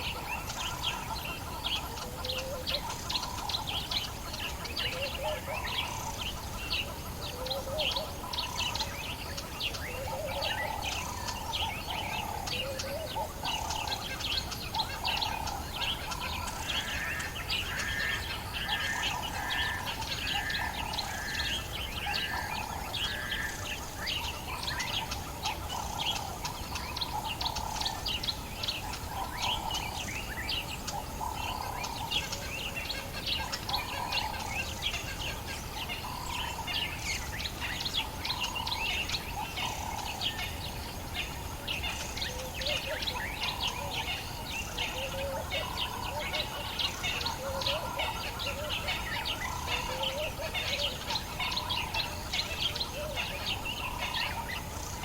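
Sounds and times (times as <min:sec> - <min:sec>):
birds chirping and trilling: 0:00.0 - 0:55.0.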